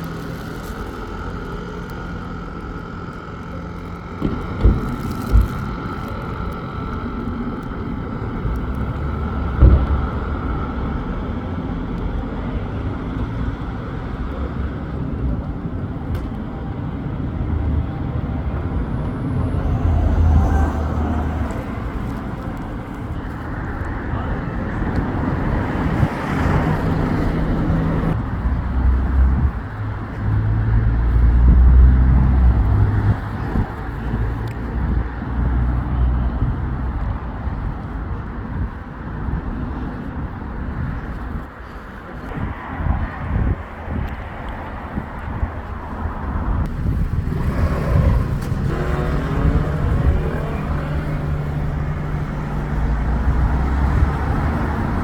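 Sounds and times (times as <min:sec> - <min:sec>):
tyre noise of passing vehicle: 0:00.0 - 0:55.0
vehicle engines droning: 0:00.0 - 0:55.0.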